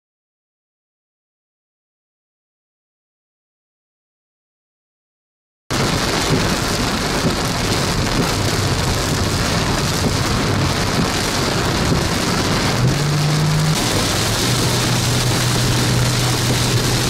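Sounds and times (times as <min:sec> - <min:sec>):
heavy rain on vehicle roof: 0:05.7 - 0:17.0
vehicle engine humming: 0:06.0 - 0:17.0.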